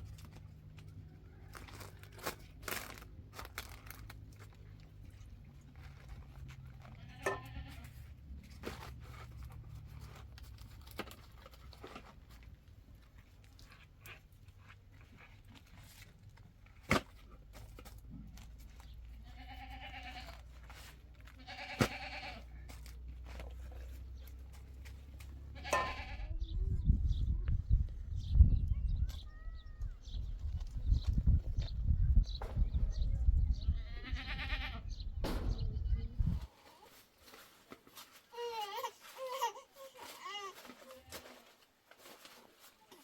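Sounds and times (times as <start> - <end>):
goats bleating: 6.9 - 7.9, 19.2 - 20.4, 21.3 - 22.6, 25.5 - 26.3, 33.8 - 34.8
steady low rumble: 29.9 - 36.5.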